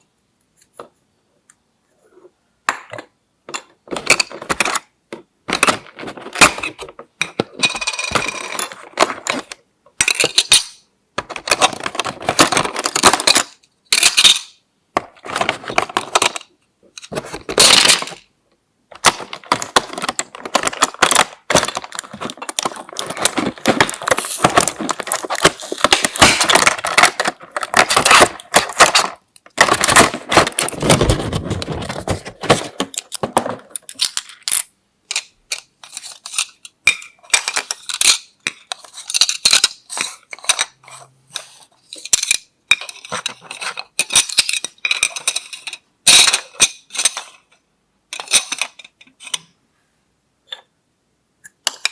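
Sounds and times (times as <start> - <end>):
plastic toy pieces clicking: 5.5 - 14.6
packaging rustling: 19.0 - 34.1.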